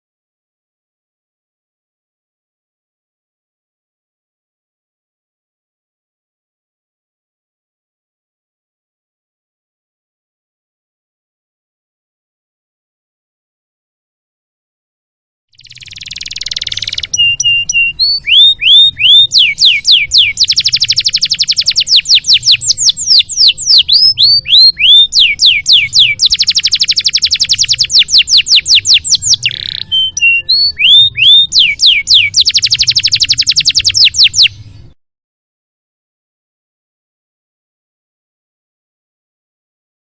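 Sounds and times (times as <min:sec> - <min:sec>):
canary singing trills: 0:15.6 - 0:34.9.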